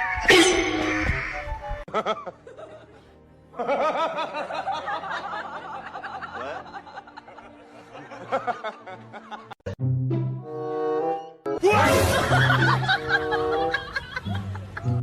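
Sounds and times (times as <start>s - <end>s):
background music: 0.0s - 15.0s
laughter: 1.9s - 9.6s, 11.7s - 15.0s.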